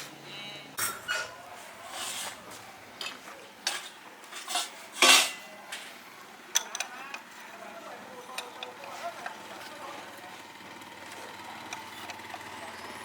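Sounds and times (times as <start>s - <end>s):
metal objects clinking and scraping: 0.8s - 5.9s.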